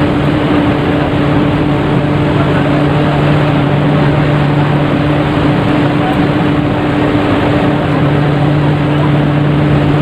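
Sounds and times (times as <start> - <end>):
broad even rumble: 0.0 - 10.0
ship engine hum: 0.0 - 10.0
faint voices: 2.2 - 9.9.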